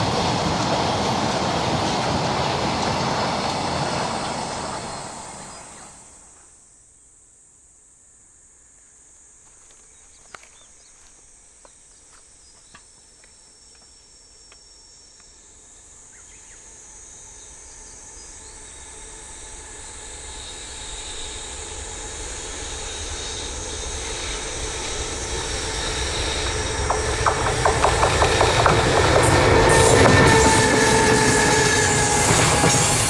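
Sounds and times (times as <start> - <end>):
electric freight train approaching: 0.0 - 6.4, 15.4 - 33.0.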